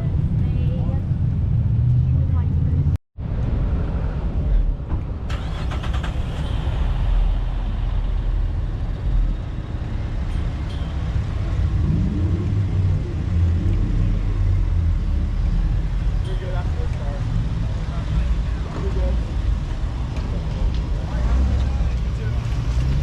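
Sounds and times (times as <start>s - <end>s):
vehicle engine exhaust rumble: 0.0s - 23.0s.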